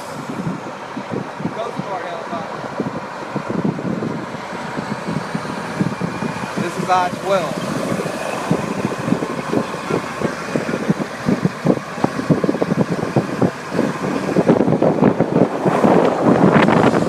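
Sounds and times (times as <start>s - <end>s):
truck driving: 0.0s - 17.0s
wind buffeting microphone: 0.0s - 17.0s.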